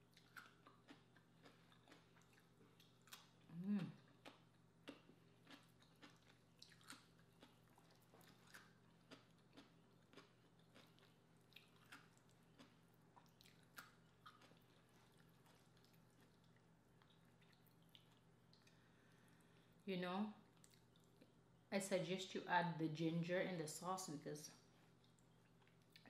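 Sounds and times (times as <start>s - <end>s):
chewing with wet mouth clicks: 0.0s - 18.8s, 20.6s - 21.3s, 25.0s - 26.0s.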